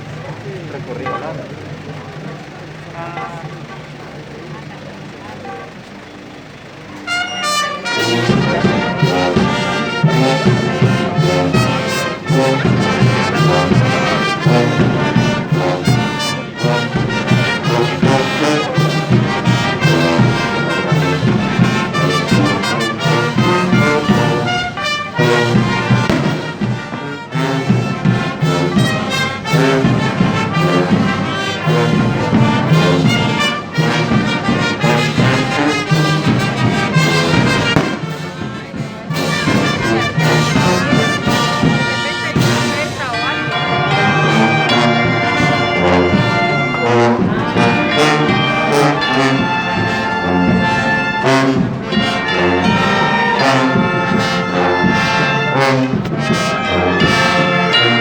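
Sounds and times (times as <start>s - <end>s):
brass band playing a slow march: 0.0s - 58.0s.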